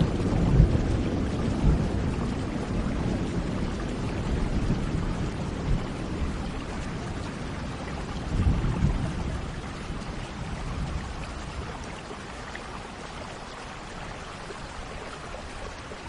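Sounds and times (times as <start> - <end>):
thunder rumbling: 0.0 - 12.1
steady rain: 0.0 - 16.0.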